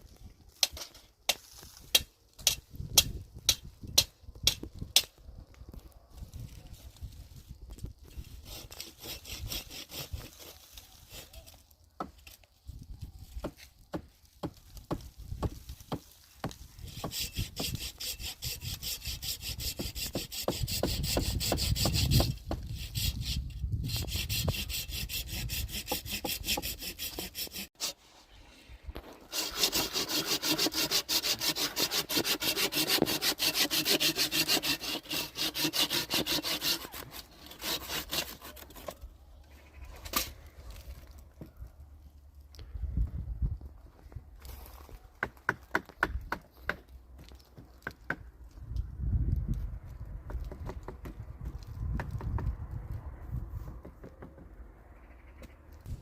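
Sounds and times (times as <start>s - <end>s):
hand saw cutting wood: 8.4s - 11.5s, 16.8s - 28.0s, 29.0s - 39.0s.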